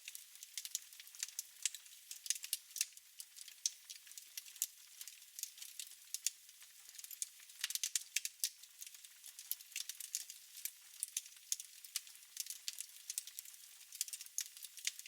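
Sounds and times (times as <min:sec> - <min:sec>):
fireplace fire crackling: 0:00.0 - 0:06.3, 0:07.0 - 0:11.2, 0:11.8 - 0:15.0.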